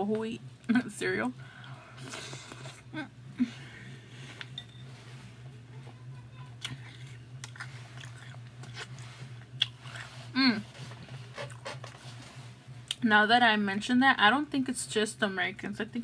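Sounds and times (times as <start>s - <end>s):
person chewing cereal: 1.6s - 2.9s, 6.6s - 12.3s.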